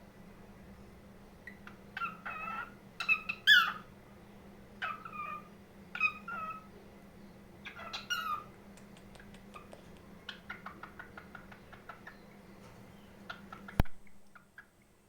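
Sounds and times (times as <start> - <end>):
cockatiel calling: 1.4 - 3.9, 4.8 - 6.7, 7.6 - 8.5, 9.6 - 13.8
cockatiel chirps and clicks: 7.7 - 12.2.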